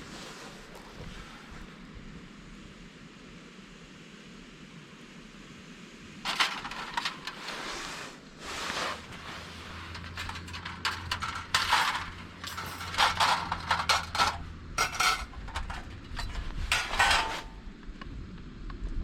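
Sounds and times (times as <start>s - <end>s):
low steady hum: 1.7s - 19.0s
metal cookware clattering: 6.3s - 7.8s, 8.8s - 17.6s.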